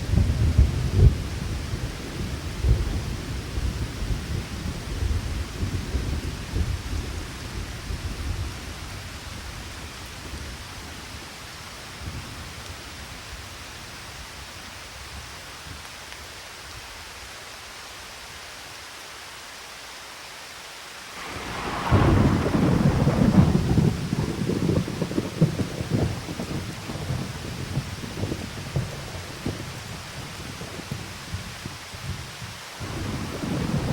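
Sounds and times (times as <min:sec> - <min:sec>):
loud thunderclap: 0:00.0 - 0:06.9, 0:21.2 - 0:31.5, 0:32.8 - 0:33.9
rolling thunder: 0:00.0 - 0:08.7, 0:21.2 - 0:32.2, 0:32.8 - 0:33.9
steady rain: 0:00.0 - 0:33.9.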